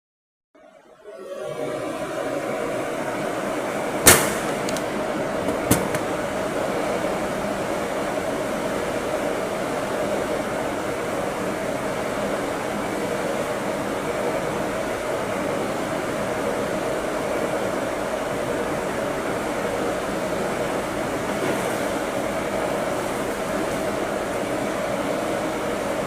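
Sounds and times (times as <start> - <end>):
steady machine hum: 0.7 - 26.0
sharp knock: 4.0 - 4.5.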